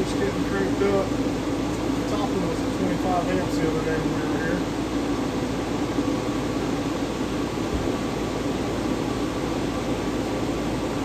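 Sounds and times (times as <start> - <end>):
cooling fans rushing: 0.0 - 11.0.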